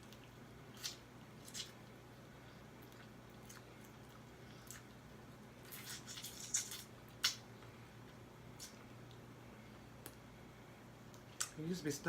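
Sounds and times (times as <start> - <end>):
wet chewing: 0.0 - 9.2
sharp lip smacks: 0.8 - 1.8, 5.7 - 7.5, 11.1 - 11.6.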